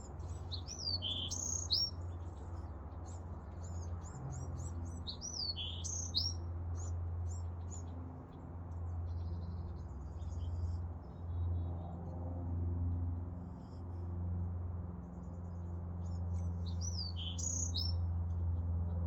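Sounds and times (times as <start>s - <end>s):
small birds chirping: 0.0s - 11.7s, 15.3s - 18.1s.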